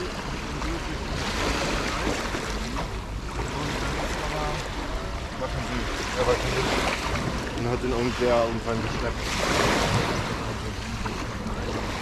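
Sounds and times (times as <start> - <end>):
faint voices of people: 0.0 - 9.3
small sea waves washing onto beach: 0.0 - 12.0.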